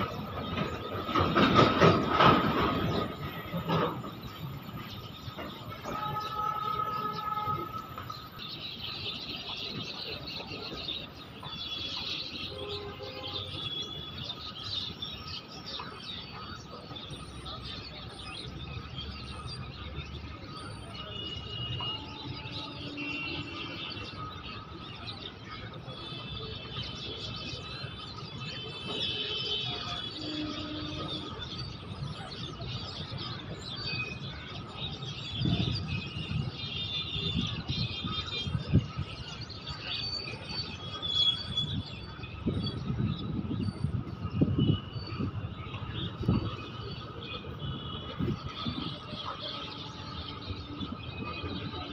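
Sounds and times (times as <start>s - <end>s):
freight train rumbling past: 0.0s - 11.5s
birds chirping: 0.0s - 51.9s.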